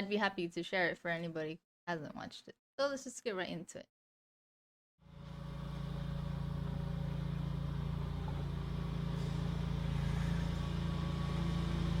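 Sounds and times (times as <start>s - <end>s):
small engine running: 5.0s - 12.0s.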